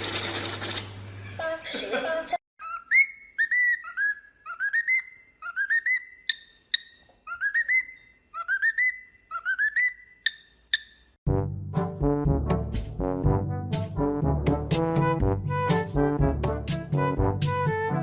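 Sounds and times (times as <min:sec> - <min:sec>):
high whistling call: 0:02.6 - 0:06.3
brass music: 0:11.3 - 0:18.0.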